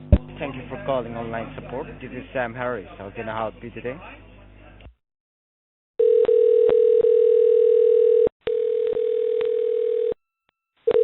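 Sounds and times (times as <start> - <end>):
telephone dial tone: 6.0 - 10.2.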